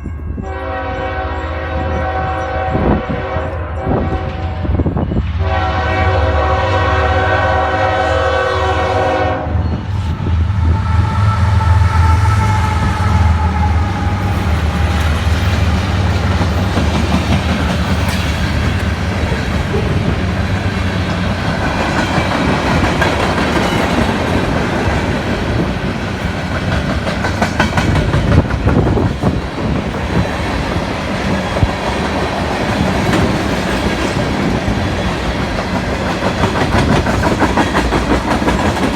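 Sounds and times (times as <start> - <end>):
locomotive rumble: 0.0 - 38.9
locomotive air horn: 0.4 - 15.0.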